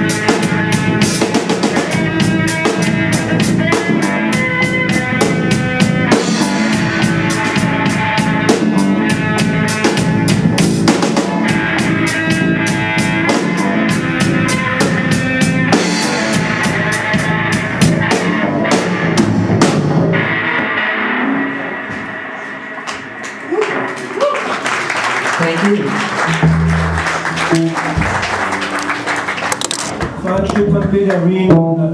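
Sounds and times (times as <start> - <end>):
drum kit beat: 0.0 - 20.8, 24.8 - 31.7.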